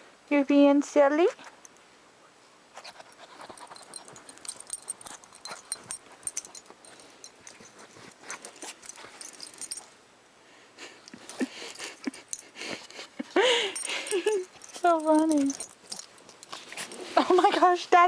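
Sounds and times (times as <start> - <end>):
puppy panting: 2.8 - 9.8, 10.8 - 17.6
faint high tinkles: 3.1 - 10.0, 10.8 - 17.7.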